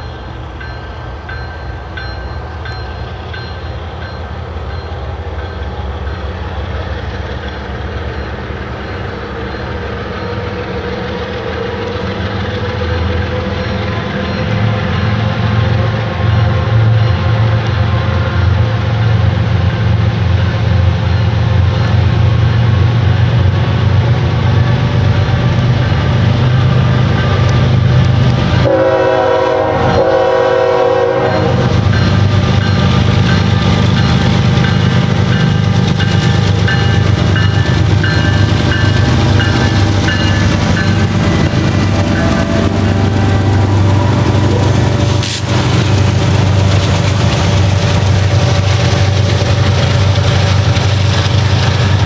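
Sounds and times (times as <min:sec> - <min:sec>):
diesel locomotive engine rumble: 0:00.0 - 0:52.0
rail noise: 0:00.0 - 0:52.0
locomotive horn blast: 0:28.6 - 0:31.7, 0:41.6 - 0:45.5.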